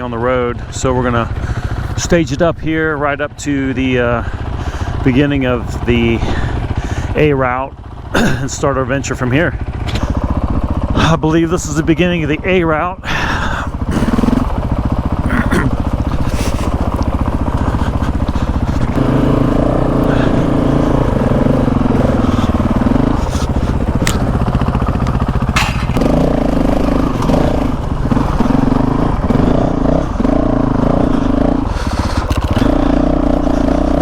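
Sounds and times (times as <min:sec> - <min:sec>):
dirt bike engine revving: 0:00.0 - 0:34.0
sharp clicks and knocks: 0:23.9 - 0:24.4, 0:25.0 - 0:26.2.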